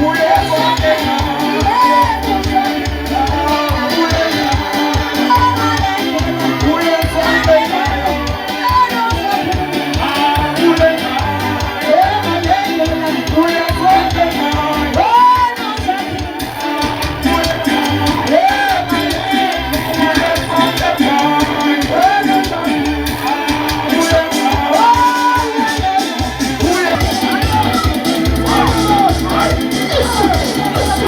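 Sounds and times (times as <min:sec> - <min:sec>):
bass line: 0:00.0 - 0:31.0
fast drum beat: 0:00.0 - 0:31.0
keyboard: 0:00.0 - 0:31.0
voices singing together: 0:00.0 - 0:31.0.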